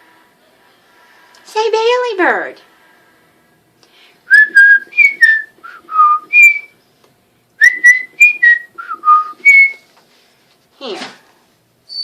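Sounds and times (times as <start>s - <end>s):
cockatiel whistling a tune: 4.3s - 6.8s, 7.6s - 9.8s.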